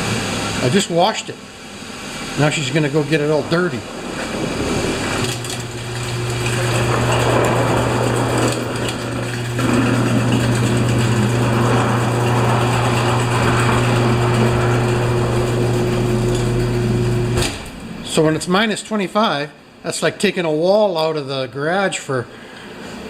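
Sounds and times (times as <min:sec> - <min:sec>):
garage door motor hum: 0:00.0 - 0:18.5
garage door rattling: 0:03.8 - 0:17.8.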